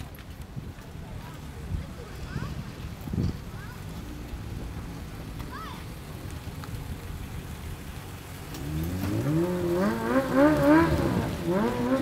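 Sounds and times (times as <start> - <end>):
vehicle engine revving: 8.1 - 12.0.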